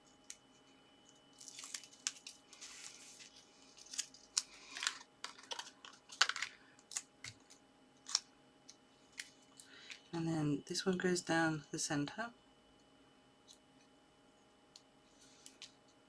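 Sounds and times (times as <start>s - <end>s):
paper rustling and crinkling: 1.0s - 8.2s.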